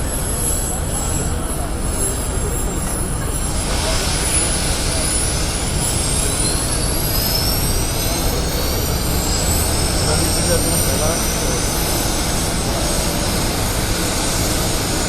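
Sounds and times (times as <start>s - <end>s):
jet engine whine: 0.0s - 15.0s.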